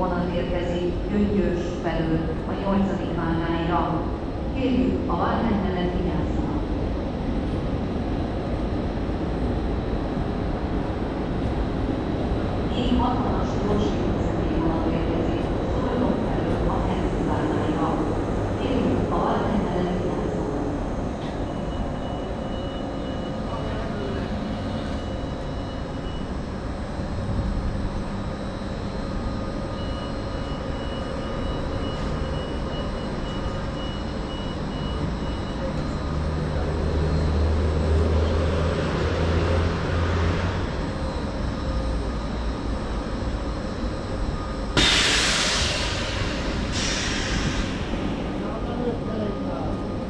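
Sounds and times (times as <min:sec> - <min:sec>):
train low rumble: 0:00.0 - 0:50.0
loud train hisses: 0:44.8 - 0:48.6.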